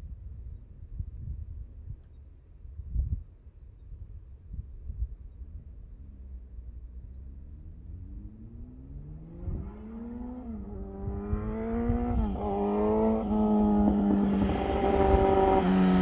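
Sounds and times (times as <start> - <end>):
motorcycle engine revving: 7.7 - 16.0.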